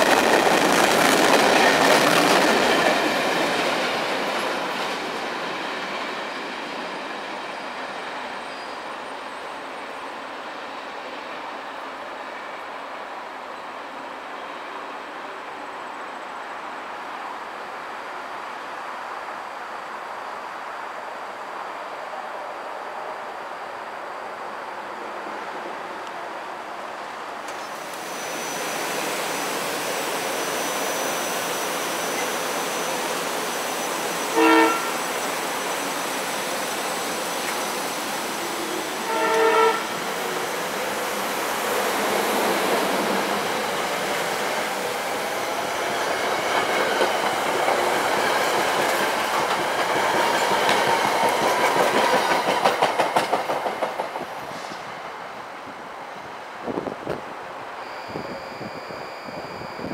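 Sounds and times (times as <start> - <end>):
train horn blasts: 34.3 - 35.1, 39.0 - 40.0
wheels clacking over rail joints: 46.4 - 54.4.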